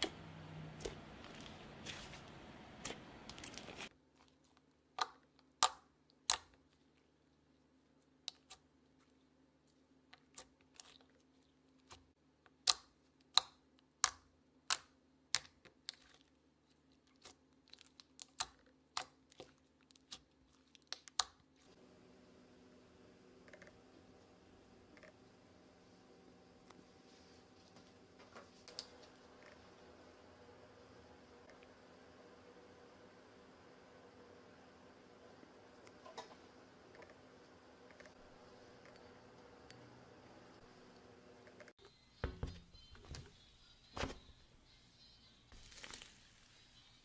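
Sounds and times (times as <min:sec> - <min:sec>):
faint steady hum: 0:21.5 - 0:47.0.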